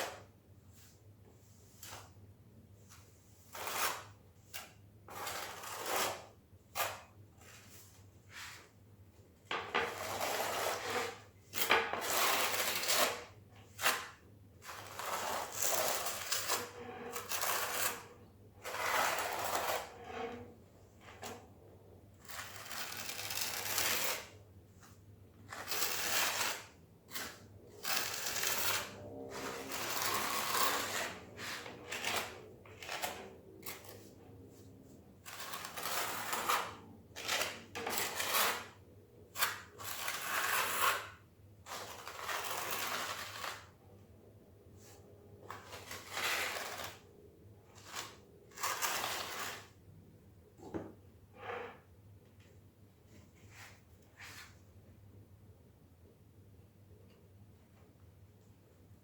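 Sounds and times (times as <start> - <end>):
scraper combing tile adhesive: 3.4 - 7.1, 12.0 - 20.5, 22.2 - 24.4, 25.5 - 38.8, 39.4 - 43.7, 47.8 - 49.7.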